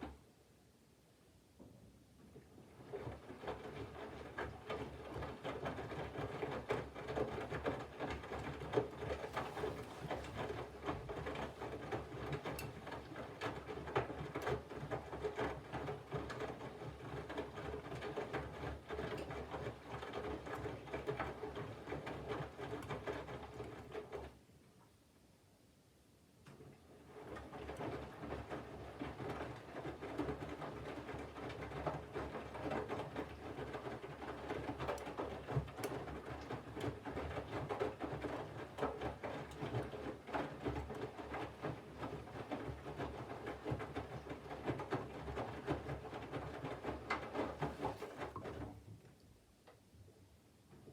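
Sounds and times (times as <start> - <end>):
laundry and water sloshing: 2.7 - 18.6, 30.3 - 48.9.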